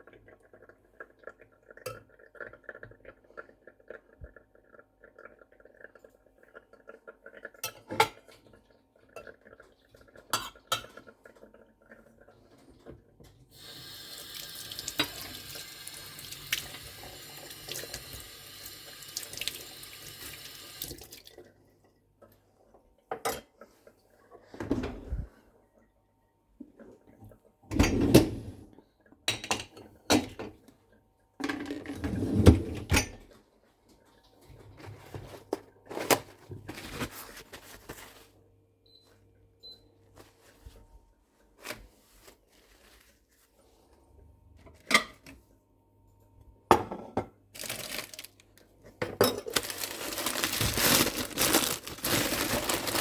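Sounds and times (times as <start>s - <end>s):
tap running into sink: 13.6s - 19.6s.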